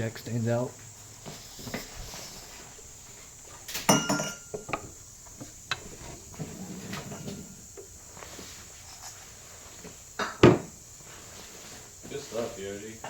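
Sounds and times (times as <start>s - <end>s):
light metallic knocks and clinks: 3.7s - 5.0s.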